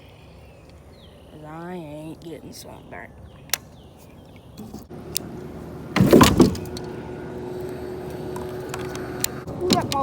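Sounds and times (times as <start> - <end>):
jet ski engine drone: 4.9 - 10.0.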